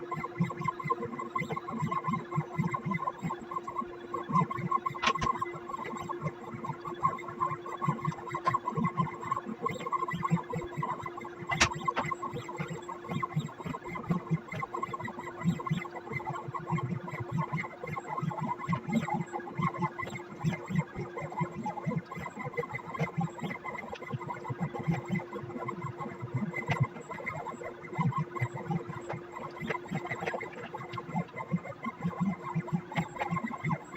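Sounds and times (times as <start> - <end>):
pen plotter motors whining: 0.0 - 33.9
sharp click: 5.0 - 5.4, 11.5 - 12.1.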